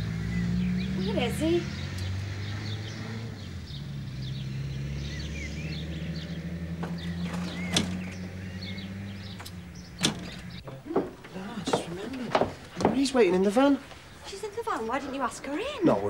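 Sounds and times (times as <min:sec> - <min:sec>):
birds chirping: 0:00.0 - 0:16.0
sharp clicks: 0:01.9 - 0:02.2, 0:09.4 - 0:10.6.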